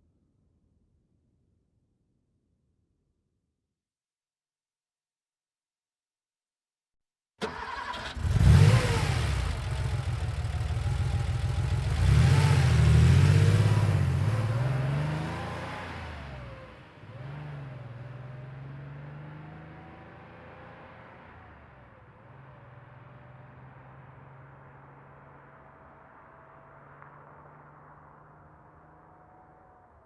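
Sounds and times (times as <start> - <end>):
car engine idling: 7.4 - 13.2
car engine starting: 7.4 - 21.7
car revving and pulling away: 7.4 - 29.7.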